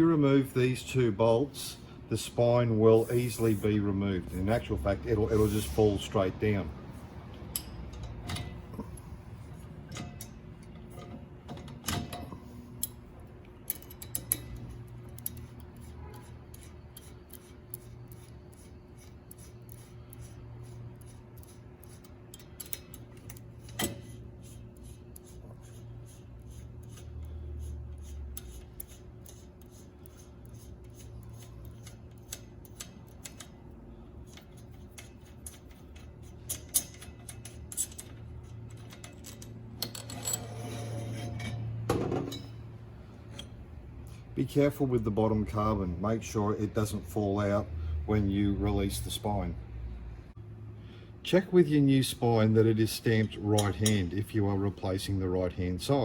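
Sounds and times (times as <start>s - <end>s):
steady low hum: 0.0s - 56.0s
allen key clicking on bolts: 7.4s - 9.1s, 9.8s - 15.9s, 20.9s - 25.4s, 28.0s - 40.6s, 53.2s - 54.1s.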